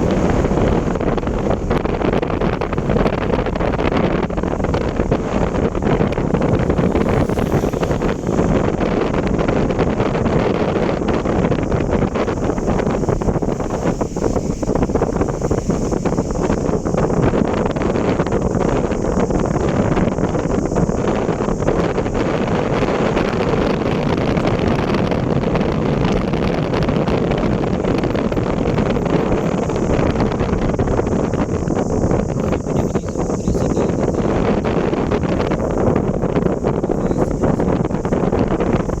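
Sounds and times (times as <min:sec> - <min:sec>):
vehicle rumble: 0:00.0 - 0:39.0
wind buffeting microphone: 0:00.0 - 0:39.0.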